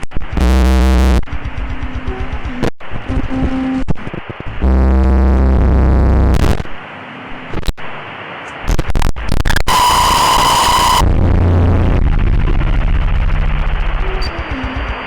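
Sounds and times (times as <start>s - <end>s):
harsh distorted electronic noise: 0.0s - 6.8s, 7.4s - 15.0s
piercing high tone: 9.7s - 11.1s.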